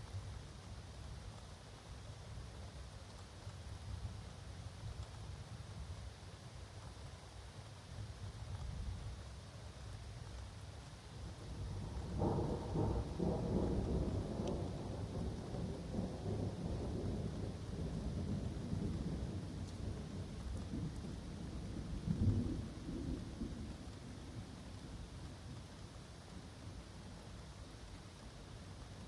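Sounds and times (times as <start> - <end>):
rain falling: 0.0 - 29.0
thunder rumbling: 11.6 - 23.8.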